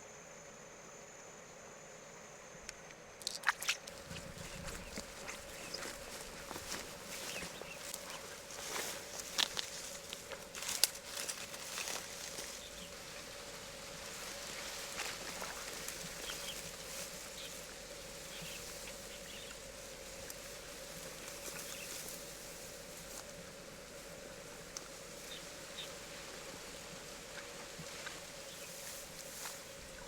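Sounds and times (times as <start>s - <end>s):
faint hum and hiss: 0.0s - 30.0s
sharp rustles and taps: 2.7s - 12.6s.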